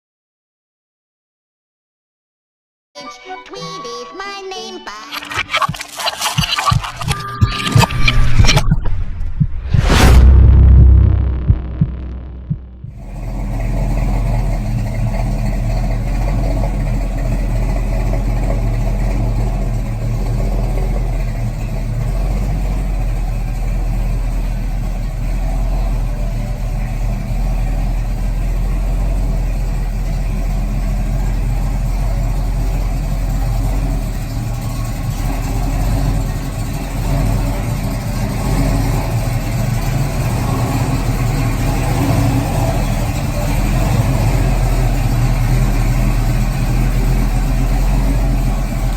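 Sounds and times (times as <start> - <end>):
car engine idling: 10.2 - 48.9.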